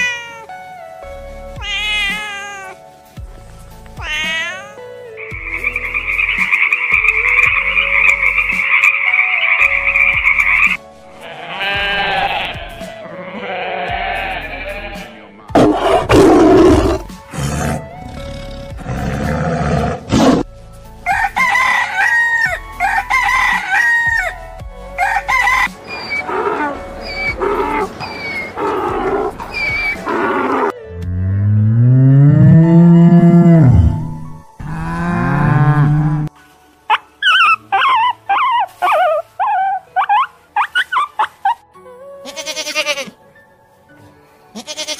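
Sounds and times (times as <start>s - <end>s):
harsh animal cries: 0.0s - 0.5s, 1.6s - 2.8s, 4.0s - 20.4s, 25.0s - 30.8s, 32.0s - 36.3s, 42.2s - 43.2s
tree frog pulsing trill: 5.2s - 10.8s.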